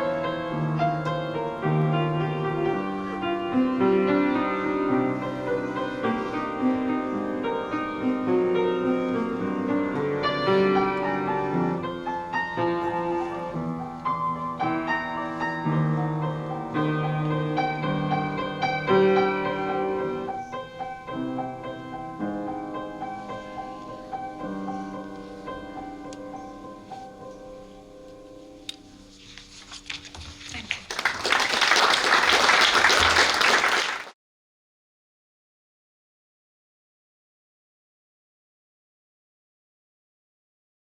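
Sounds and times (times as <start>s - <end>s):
solo piano playing: 0.0s - 28.6s.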